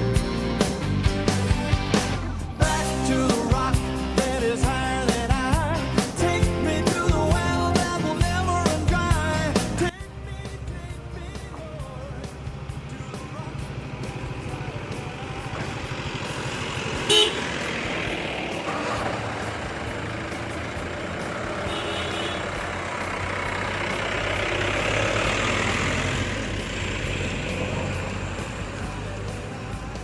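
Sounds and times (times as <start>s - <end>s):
road vehicle running: 0.0s - 30.0s
vehicle horn toot: 17.0s - 17.6s, 21.6s - 22.6s.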